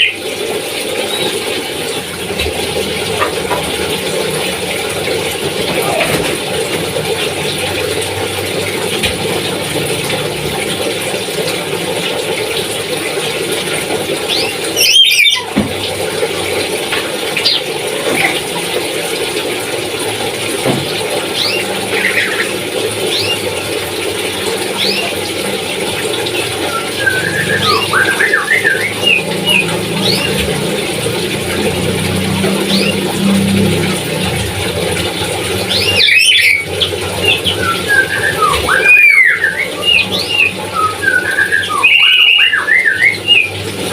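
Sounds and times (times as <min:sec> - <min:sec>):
parrot chirping and chattering: 0:02.1 - 0:07.7, 0:14.2 - 0:15.9, 0:17.4 - 0:18.4, 0:26.2 - 0:34.4, 0:35.0 - 0:43.6.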